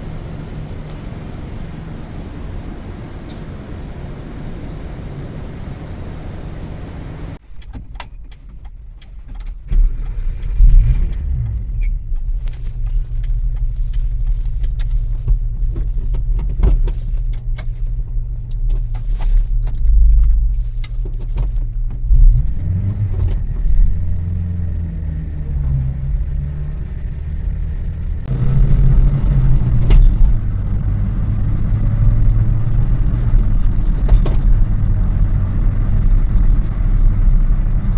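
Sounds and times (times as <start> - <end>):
small engine droning: 0.0 - 7.4, 9.6 - 37.9
rattles and clicks: 7.4 - 37.9.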